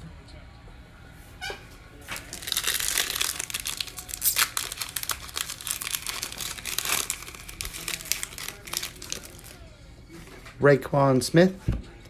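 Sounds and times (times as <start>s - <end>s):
card pack wrapper crinkling: 2.0s - 9.6s.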